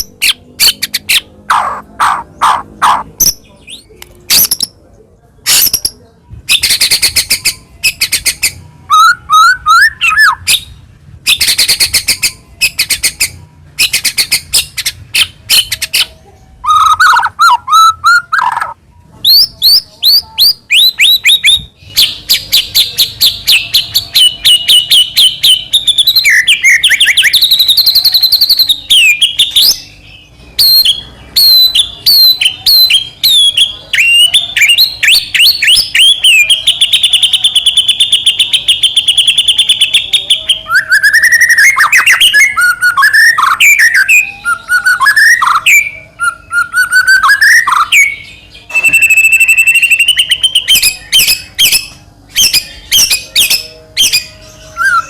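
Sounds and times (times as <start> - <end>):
bird singing varied song: 0.0 - 55.0.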